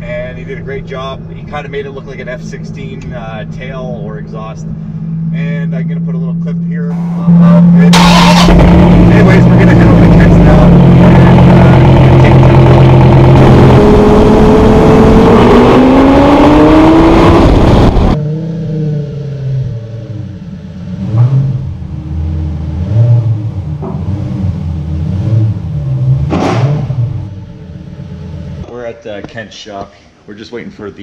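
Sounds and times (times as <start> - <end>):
sports car engine accelerating: 0.2 - 28.7
engine revving: 5.0 - 28.6.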